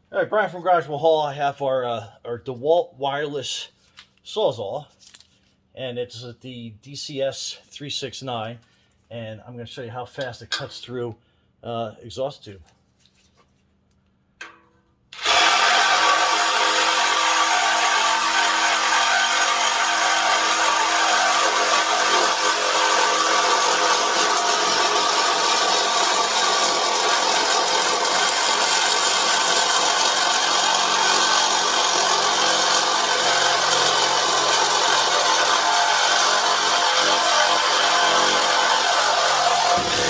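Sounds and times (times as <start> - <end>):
reciprocating saw cutting metal tube: 15.2 - 40.0.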